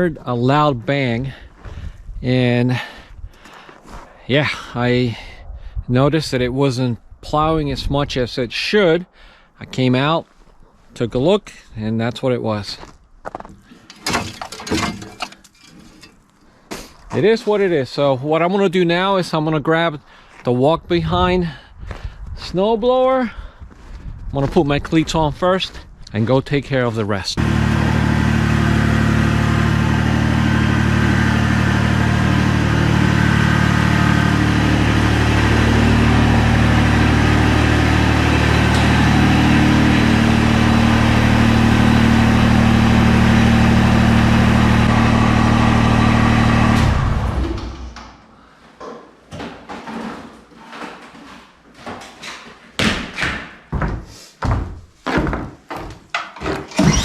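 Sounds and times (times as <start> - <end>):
irregular knocks and clunks: 13.4 - 16.2, 52.8 - 56.9
tractor engine idling: 27.4 - 48.0.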